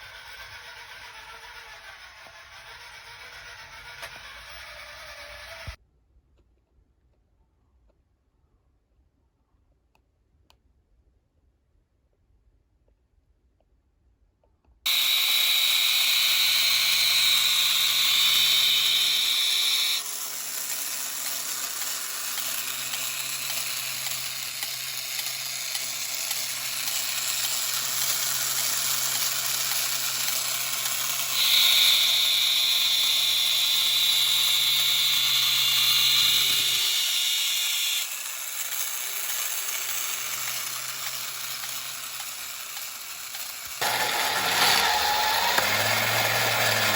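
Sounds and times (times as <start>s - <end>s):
toy motor and gears whirring: 0.0s - 5.8s, 14.9s - 46.9s.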